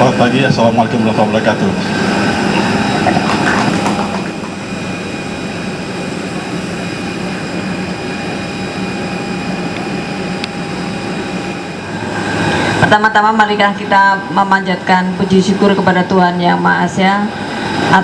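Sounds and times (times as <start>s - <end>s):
constant high whine: 0.0s - 18.0s
jet airliner engine drone: 0.0s - 18.0s
faint voices: 1.6s - 4.7s.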